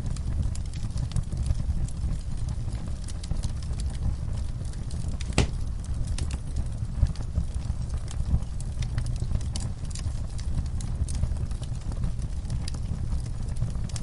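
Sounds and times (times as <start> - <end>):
wood fire crackling: 0.0 - 14.0
loud pop from fire: 5.2 - 5.7.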